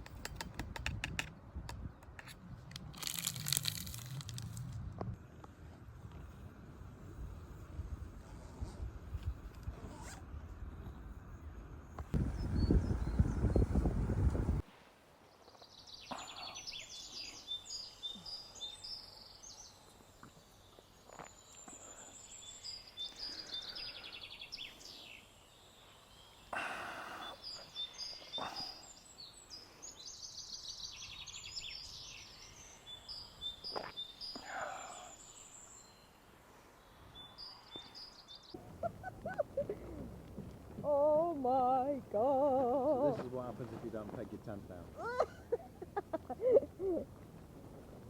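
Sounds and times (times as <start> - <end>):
small songbirds trilling: 15.7 - 19.8, 20.6 - 36.1.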